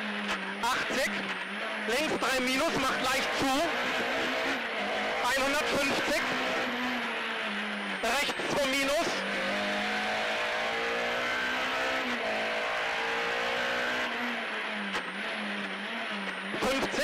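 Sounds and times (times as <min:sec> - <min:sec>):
rally car engine at high revs: 0:00.0 - 0:17.0.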